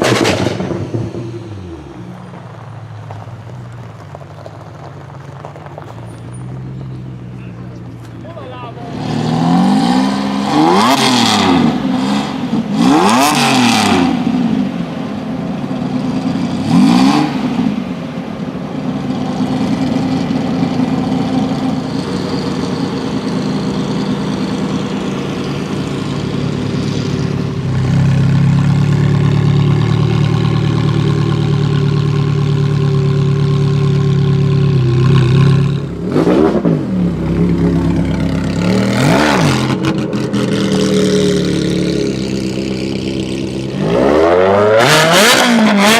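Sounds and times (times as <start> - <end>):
car engine revving: 0.0 - 3.2, 6.6 - 45.9
car engine idling: 0.0 - 9.0, 17.4 - 43.9.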